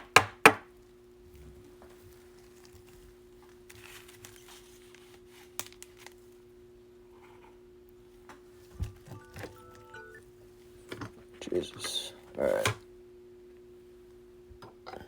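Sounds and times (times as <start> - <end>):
low steady hum: 0.6 - 15.0
soft plastic rustling: 0.7 - 6.7
short electronic tones: 9.1 - 10.3.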